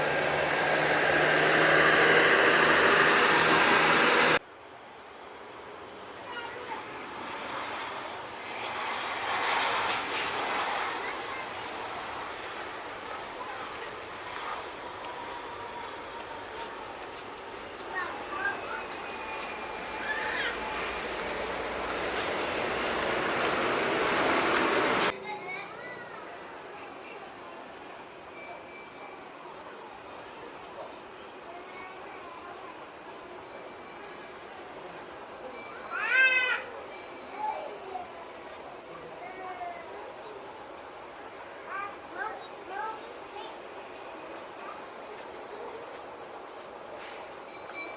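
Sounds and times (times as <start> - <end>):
distant jet engine: 0.0 - 4.4, 5.4 - 25.2
high-pitched insect drone: 14.4 - 21.8.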